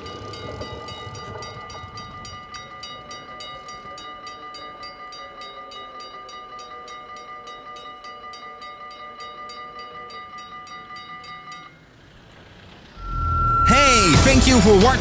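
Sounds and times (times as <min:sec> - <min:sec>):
level crossing warning bell ringing: 0:00.0 - 0:12.0.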